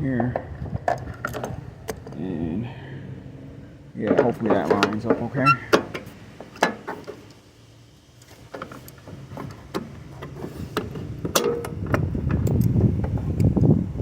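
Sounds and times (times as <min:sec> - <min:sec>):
metallic clicks and knocks: 0:08.2 - 0:13.5.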